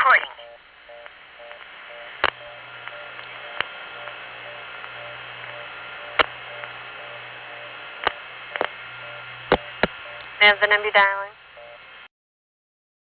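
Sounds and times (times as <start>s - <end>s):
telephone line hiss and hum: 0.0s - 12.1s
sharp clicks: 0.9s - 10.4s.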